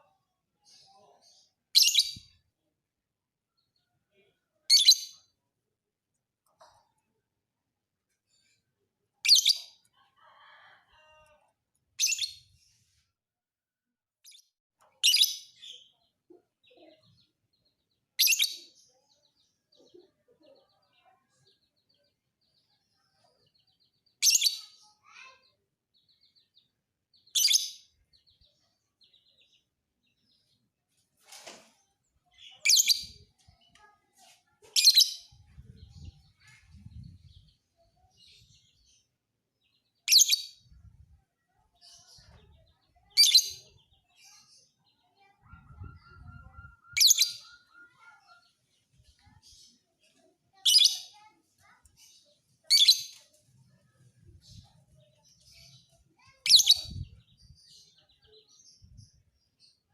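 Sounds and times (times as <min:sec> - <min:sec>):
faint soft bird chirping: 0:14.3 - 0:59.9
bird shrill chirps: 0:45.4 - 0:48.4.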